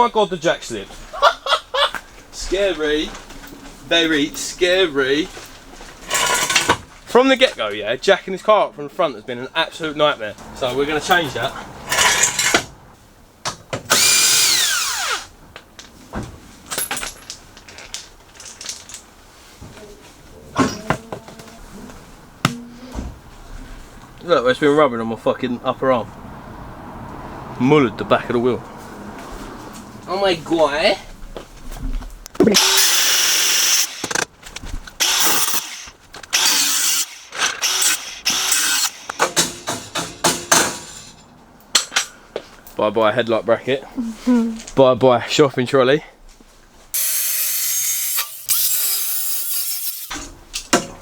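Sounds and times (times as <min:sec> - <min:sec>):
clicks and knocks of metal tools: 0:06.0 - 0:06.8, 0:33.6 - 0:42.8
power tool whining: 0:10.6 - 0:12.7, 0:13.9 - 0:15.3, 0:32.4 - 0:34.3, 0:35.0 - 0:39.4, 0:47.0 - 0:50.2
power tool whine spinning down: 0:13.9 - 0:15.3.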